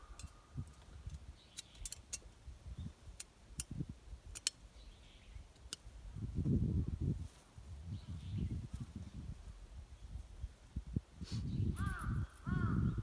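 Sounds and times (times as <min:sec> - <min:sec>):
sharp clicks and light knocks: 0:03.2 - 0:04.6.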